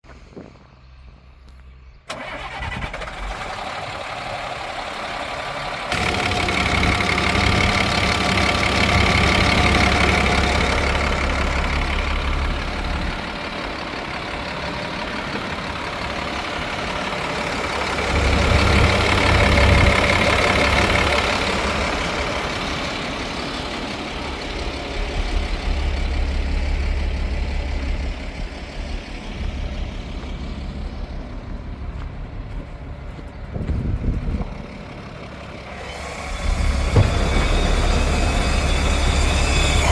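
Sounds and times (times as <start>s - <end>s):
truck engine rumbling: 0.0s - 39.9s.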